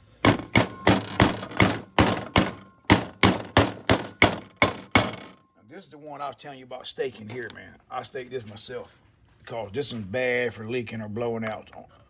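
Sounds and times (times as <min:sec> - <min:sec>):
rubber mallet striking metal: 0:00.0 - 0:05.4.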